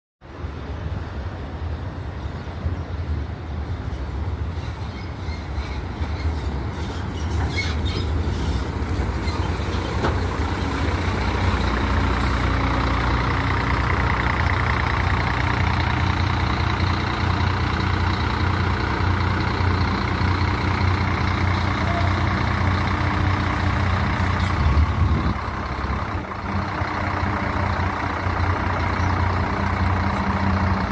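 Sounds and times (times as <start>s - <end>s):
diesel bus engine drone: 0.2s - 30.9s.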